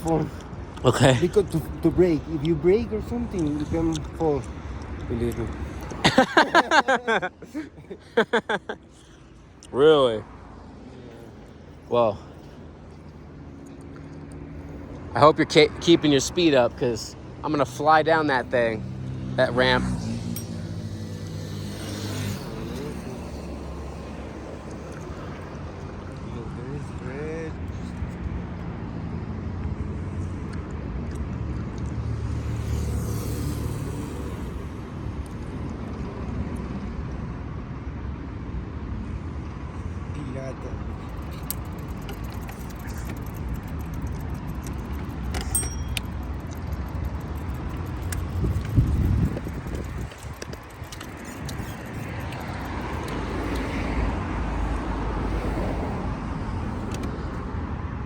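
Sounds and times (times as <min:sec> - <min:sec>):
traffic noise: 0:00.0 - 0:58.0
wind rumbling on microphone: 0:46.9 - 0:58.0.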